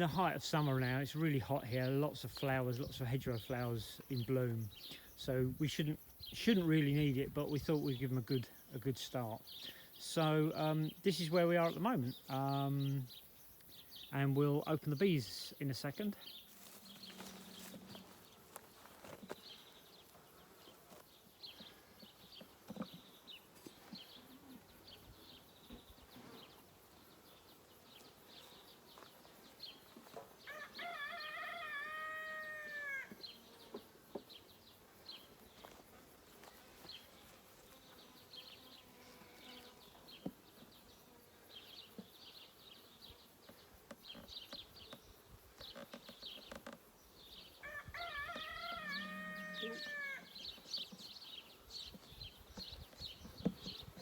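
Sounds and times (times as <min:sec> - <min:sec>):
rooster crowing: 0:30.5 - 0:33.2, 0:47.6 - 0:50.4.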